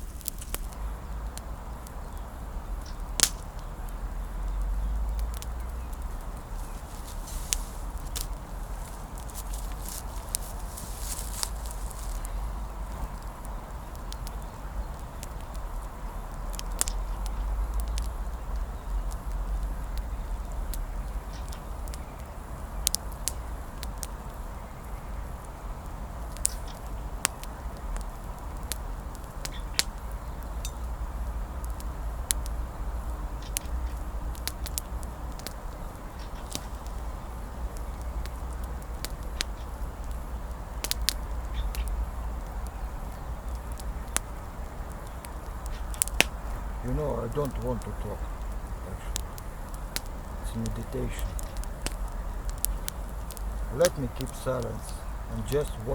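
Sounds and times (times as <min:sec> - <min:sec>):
campfire crackling: 0:00.0 - 0:55.9.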